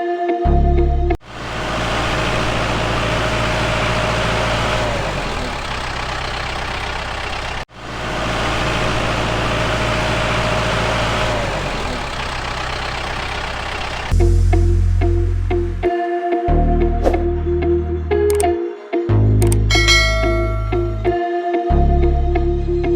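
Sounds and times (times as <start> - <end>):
engine running with whine: 1.1 - 14.4, 19.4 - 21.2.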